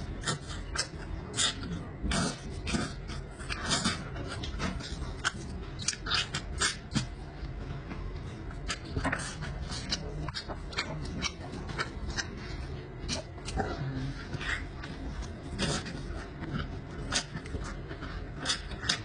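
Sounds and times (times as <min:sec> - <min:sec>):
chewing and lip-smacking: 0:00.0 - 0:19.0.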